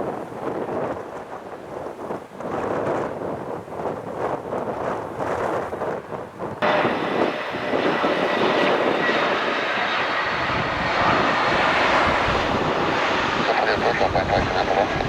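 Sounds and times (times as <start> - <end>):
jet engines rushing: 6.6 - 15.0.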